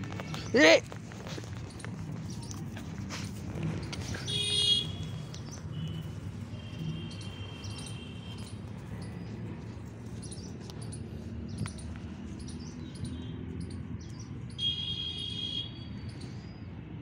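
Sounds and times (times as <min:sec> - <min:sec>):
small birds chirping: 0:00.0 - 0:15.1
low outdoor background: 0:00.0 - 0:17.0
drawn-out bird call: 0:03.6 - 0:16.3.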